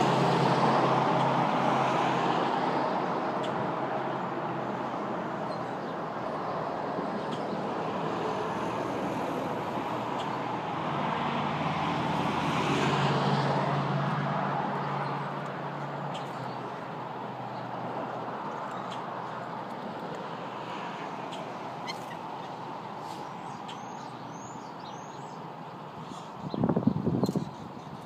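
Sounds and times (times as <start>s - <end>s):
road traffic noise: 0.0s - 28.0s
vehicle engine passing: 8.2s - 18.5s.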